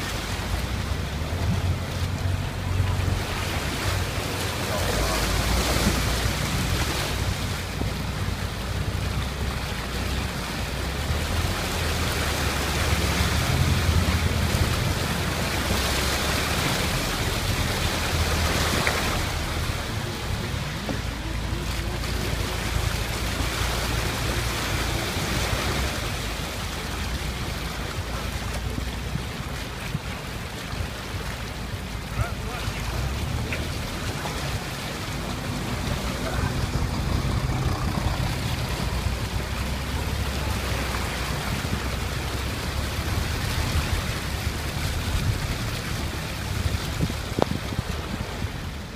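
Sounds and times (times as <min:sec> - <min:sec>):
floodwater rushing and splashing: 0:00.0 - 0:48.9
low rumble: 0:31.8 - 0:48.9.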